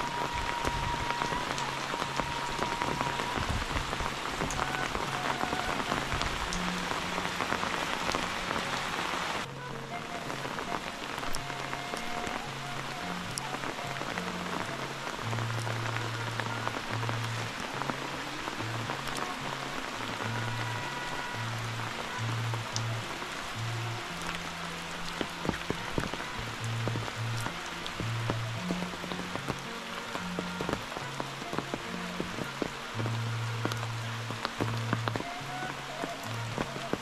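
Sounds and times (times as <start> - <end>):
heavy rain falling: 0.0 - 37.0
soft background music: 0.0 - 37.0.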